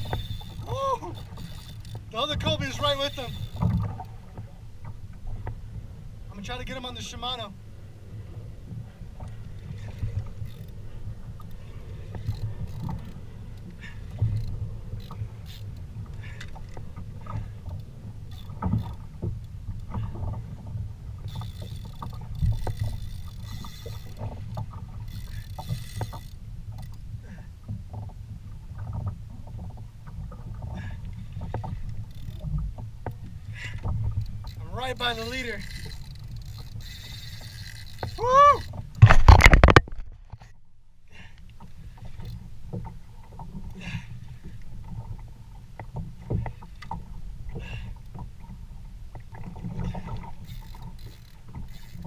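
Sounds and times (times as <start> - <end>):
wind and water rumble: 0.0 - 52.0
knocks and clicks: 39.0 - 40.2.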